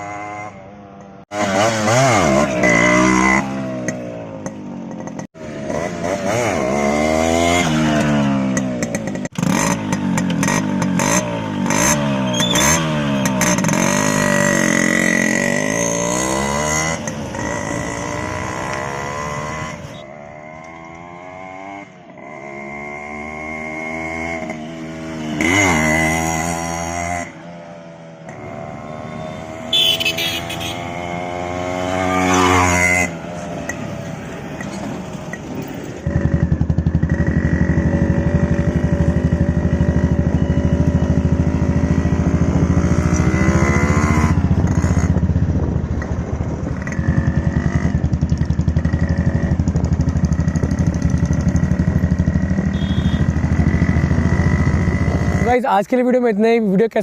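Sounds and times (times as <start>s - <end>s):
two-stroke engine revving: 1.3s - 27.4s, 28.2s - 34.0s, 36.0s - 55.7s.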